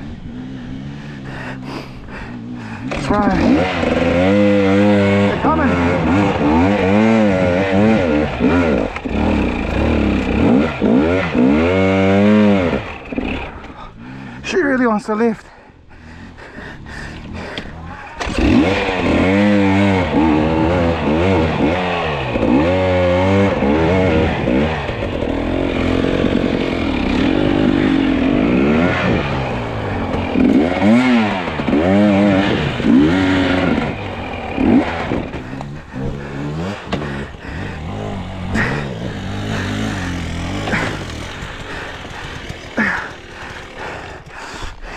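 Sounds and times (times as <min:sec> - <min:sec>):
dirt bike engine revving: 0:00.0 - 0:15.3, 0:16.0 - 0:44.9
bike scraping and clatter: 0:24.4 - 0:44.9.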